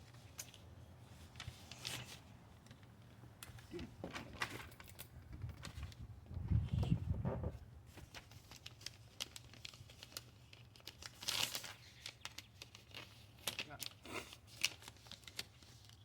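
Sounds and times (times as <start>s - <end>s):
crinkling and rustling: 0.0s - 16.0s.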